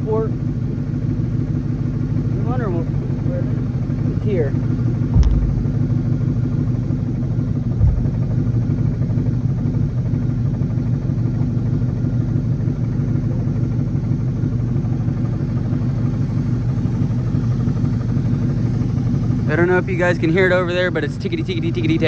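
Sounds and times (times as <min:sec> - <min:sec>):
car engine idling unevenly: 0:00.0 - 0:22.0
engine ticking tap: 0:03.7 - 0:10.1
low thump: 0:04.9 - 0:06.8, 0:07.6 - 0:08.9.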